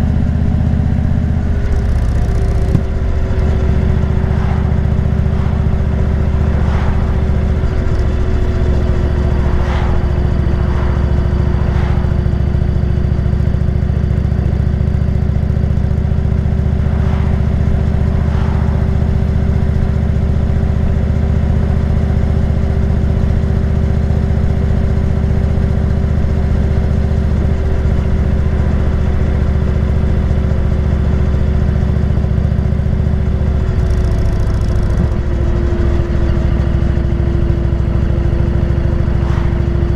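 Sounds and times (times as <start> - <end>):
motorcycle engine cruising: 1.0 - 22.4.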